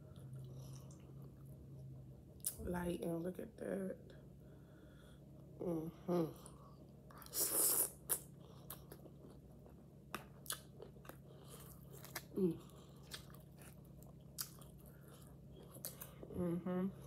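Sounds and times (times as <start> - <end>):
chewing crisp food: 7.1 - 16.4
person humming: 16.3 - 17.0.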